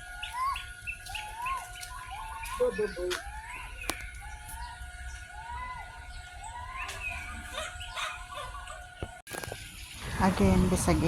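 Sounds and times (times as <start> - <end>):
bird whistled call: 0.0 - 9.2
higher bird chirps: 0.0 - 9.9.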